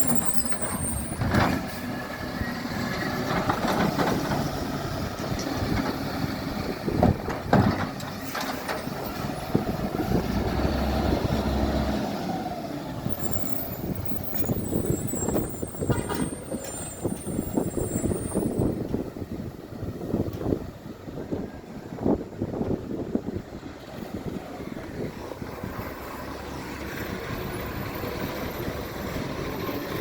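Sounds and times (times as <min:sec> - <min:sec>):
knocks and clatter: 0:03.2 - 0:04.5, 0:07.0 - 0:09.3.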